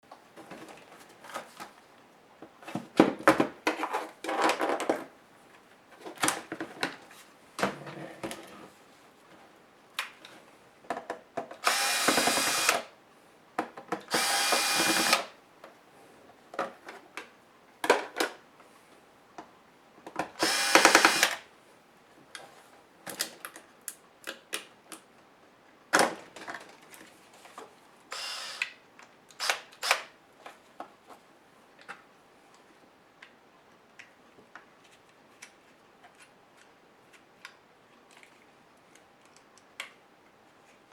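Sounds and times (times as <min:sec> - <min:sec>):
electric screwdriver whirring: 0:11.6 - 0:12.9, 0:14.1 - 0:15.3, 0:20.4 - 0:21.4, 0:28.1 - 0:28.8, 0:29.4 - 0:30.1.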